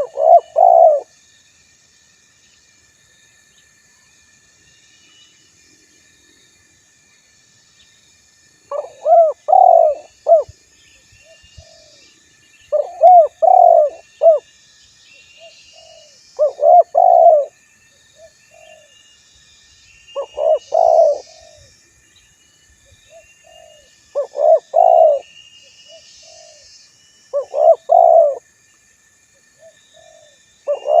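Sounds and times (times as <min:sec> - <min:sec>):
dove cooing: 0:00.0 - 0:01.1, 0:08.7 - 0:10.5, 0:12.7 - 0:14.4, 0:15.8 - 0:17.5, 0:20.2 - 0:21.7, 0:23.1 - 0:25.2, 0:27.4 - 0:28.4, 0:30.0 - 0:31.0
faint high chirping: 0:00.0 - 0:01.5, 0:08.7 - 0:31.0.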